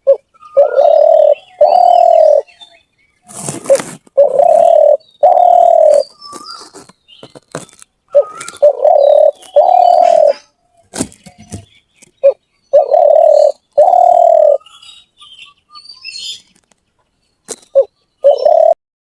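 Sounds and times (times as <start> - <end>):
dove cooing: 0.0 - 2.6, 3.3 - 6.9, 7.6 - 10.5, 11.2 - 14.6, 17.7 - 18.8
small birds chirping faintly: 0.0 - 18.8.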